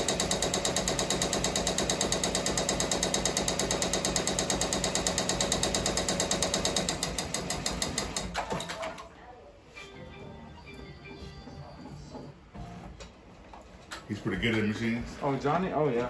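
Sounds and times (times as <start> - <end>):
embroidery machine clattering: 0.0 - 9.0.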